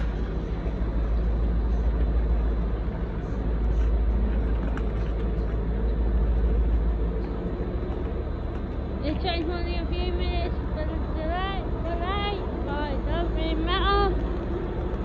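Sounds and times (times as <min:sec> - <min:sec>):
train rolling slowly: 0:00.0 - 0:15.0.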